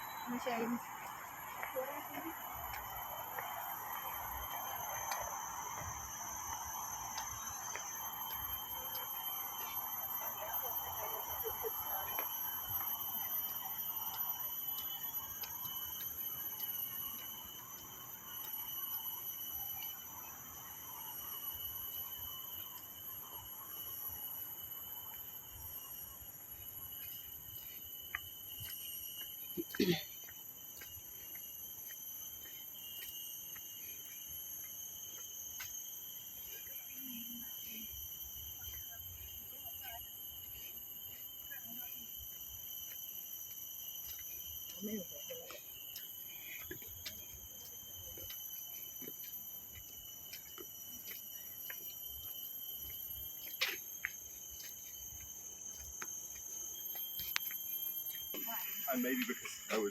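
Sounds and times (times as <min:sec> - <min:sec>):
shrill insect chorus: 0:00.0 - 0:59.9
faint ticks: 0:57.2 - 0:57.6.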